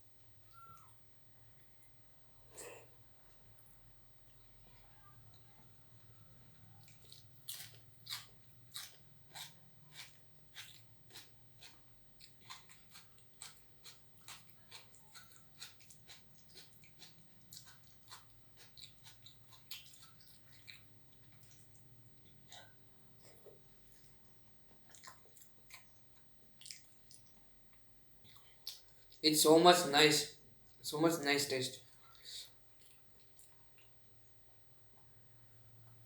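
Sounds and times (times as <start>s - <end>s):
person chewing food: 5.3s - 29.2s, 31.9s - 34.2s.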